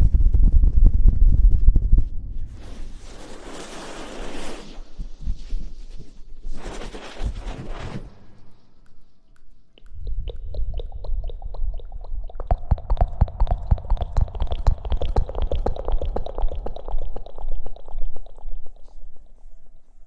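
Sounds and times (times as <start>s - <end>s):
deep rumble: 0.0s - 2.8s, 9.8s - 17.4s
scratching and rustling on microphone: 0.0s - 8.8s.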